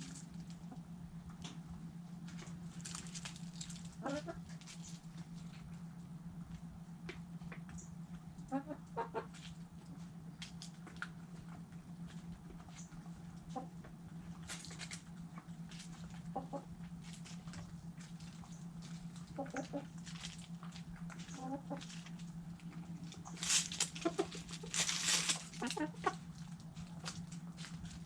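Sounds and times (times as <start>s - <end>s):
chickens pecking: 0.0s - 28.0s
low hum: 0.0s - 28.0s
chicken clucking: 3.9s - 4.9s, 8.4s - 9.5s, 12.6s - 13.9s, 15.9s - 17.6s, 18.4s - 22.2s, 22.8s - 27.1s
scratchy rustle: 20.0s - 28.0s.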